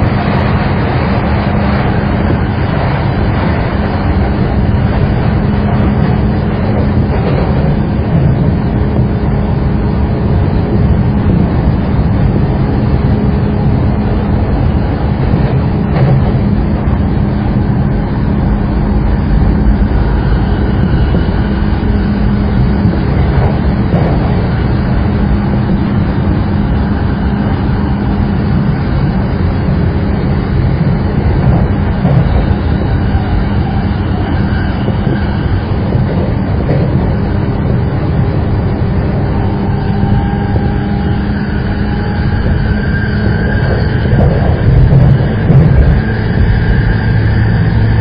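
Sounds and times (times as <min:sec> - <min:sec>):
low hum: 0:00.0 - 0:48.0
train wheels rumbling on rail: 0:00.0 - 0:48.0.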